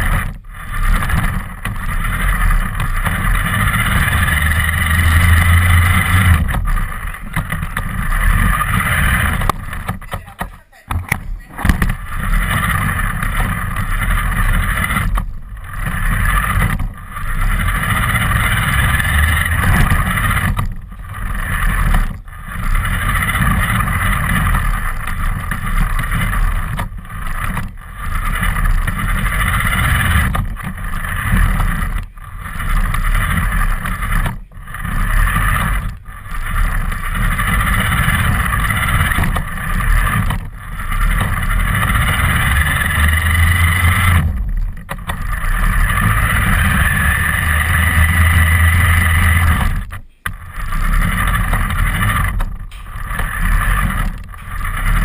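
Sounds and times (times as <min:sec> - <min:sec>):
radio-controlled car motor: 0:00.0 - 0:55.0.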